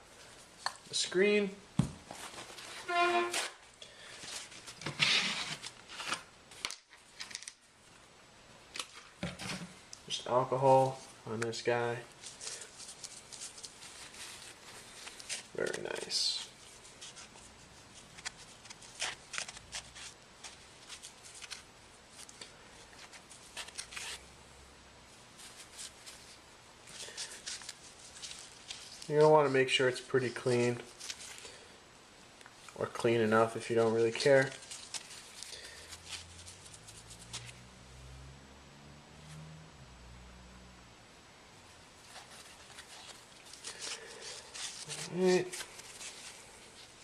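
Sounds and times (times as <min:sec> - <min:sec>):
cloth rubbing on phone: 0:34.2 - 0:37.7.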